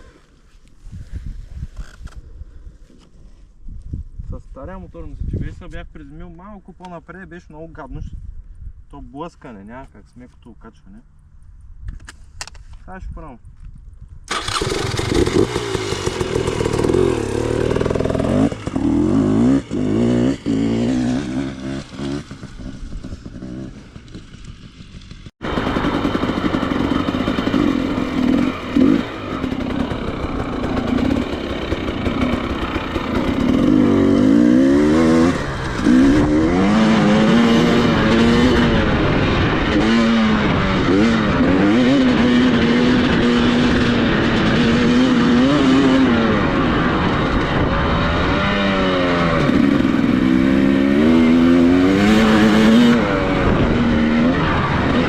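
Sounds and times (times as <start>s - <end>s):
off-road motorcycle engine revving: 14.3s - 55.0s.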